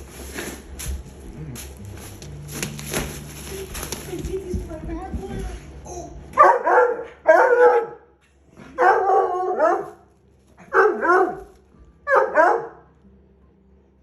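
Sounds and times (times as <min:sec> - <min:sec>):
dog bark-howling: 0:06.4 - 0:08.1, 0:08.8 - 0:10.0, 0:10.6 - 0:11.5, 0:12.1 - 0:12.9.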